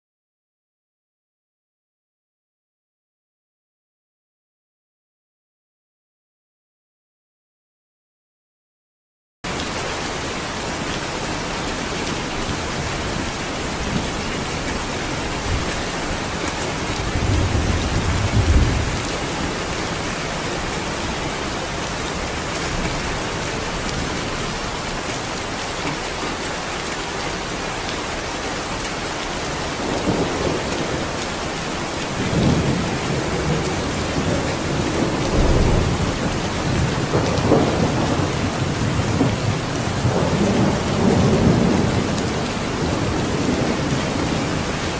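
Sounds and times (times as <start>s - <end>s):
heavy rain falling: 9.4s - 44.9s
thunder rumbling: 12.3s - 24.8s, 29.8s - 31.2s, 32.0s - 44.9s.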